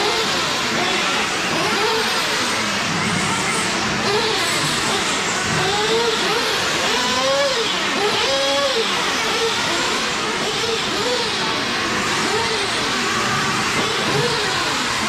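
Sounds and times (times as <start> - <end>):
model truck engines revving: 0.0 - 15.0.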